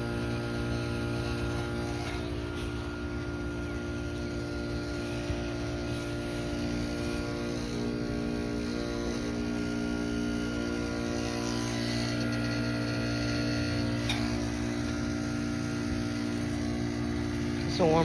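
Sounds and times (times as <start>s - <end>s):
heat pump compressor hum: 0.0s - 18.0s.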